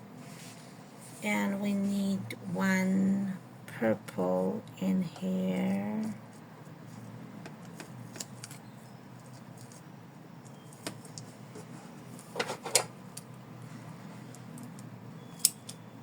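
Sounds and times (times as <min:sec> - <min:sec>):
low steady hum: 0:00.0 - 0:16.0
hands handling ribbon and tape: 0:09.2 - 0:09.9.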